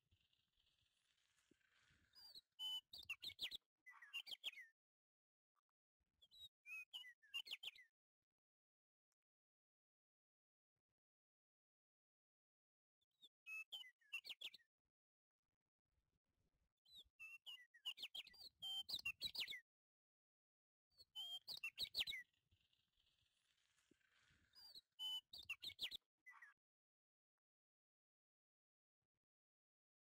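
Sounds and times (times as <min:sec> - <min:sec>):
small bird chirping: 0:00.1 - 0:04.7, 0:06.2 - 0:07.9, 0:13.2 - 0:14.7, 0:16.9 - 0:19.6, 0:21.0 - 0:26.6.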